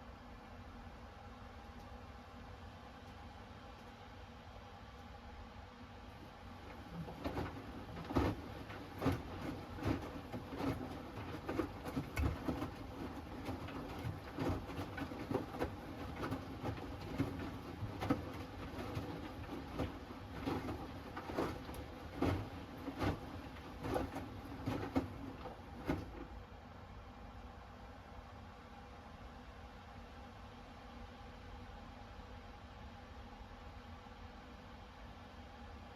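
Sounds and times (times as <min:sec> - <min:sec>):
wet laundry sloshing and thumping: 0:06.5 - 0:26.4
washing machine drum tumbling: 0:06.6 - 0:26.3.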